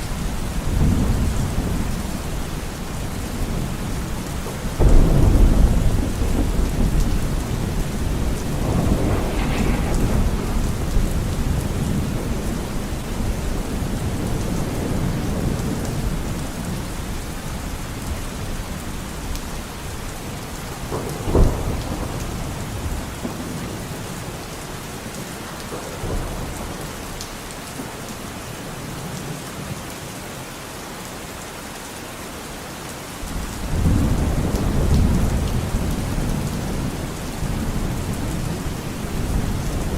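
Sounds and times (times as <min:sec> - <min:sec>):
heavy rain falling: 0:00.0 - 0:39.9
thunder rumbling: 0:00.2 - 0:16.8
sharp thunder crack: 0:04.8 - 0:13.6.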